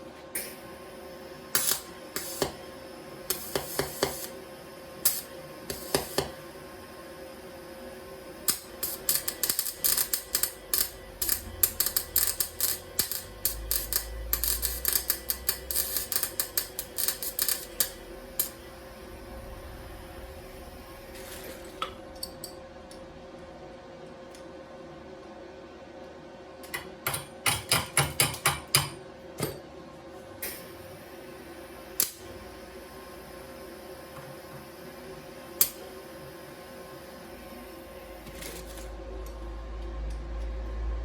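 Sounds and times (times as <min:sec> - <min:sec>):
welder arc crackling: 0:01.5 - 0:06.5, 0:08.3 - 0:23.0, 0:31.9 - 0:32.8.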